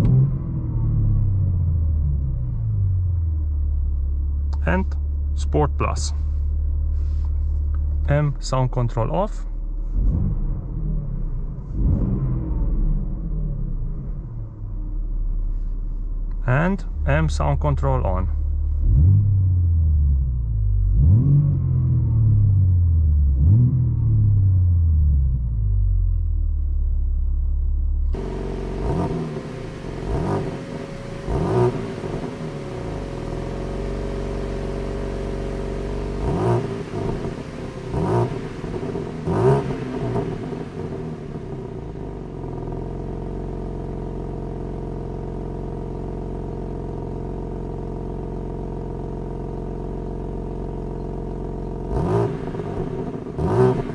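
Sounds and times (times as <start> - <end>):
car engine revving: 18.6 - 22.4, 28.1 - 53.9
car engine idling: 26.2 - 53.9.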